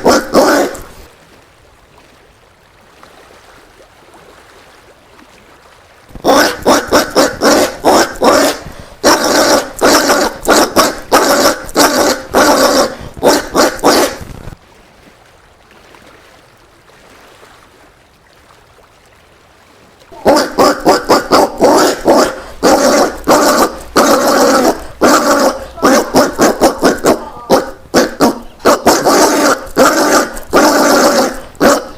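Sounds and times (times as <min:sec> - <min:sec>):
peccary bark-like calls: 0:00.0 - 0:01.1, 0:06.2 - 0:14.3, 0:20.1 - 0:31.9.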